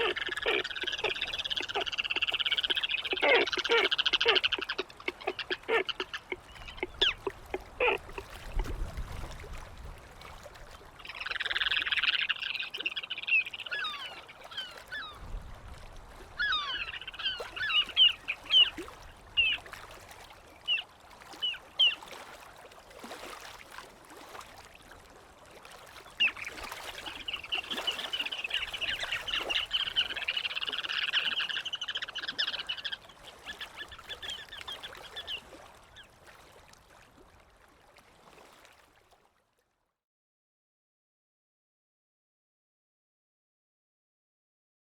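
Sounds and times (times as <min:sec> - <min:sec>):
gulls calling: 0:00.0 - 0:08.6, 0:11.0 - 0:15.2, 0:16.4 - 0:19.7, 0:26.2 - 0:36.0.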